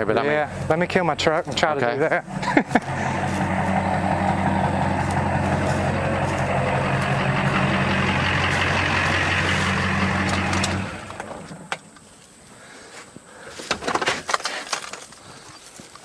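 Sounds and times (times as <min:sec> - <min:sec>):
truck engine idling: 0:00.0 - 0:11.7.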